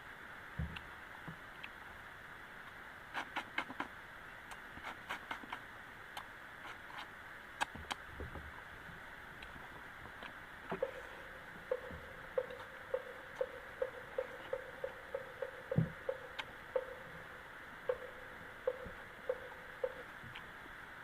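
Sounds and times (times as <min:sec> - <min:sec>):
rain hissing: 0:00.0 - 0:21.0
dull low thumps: 0:10.8 - 0:20.1.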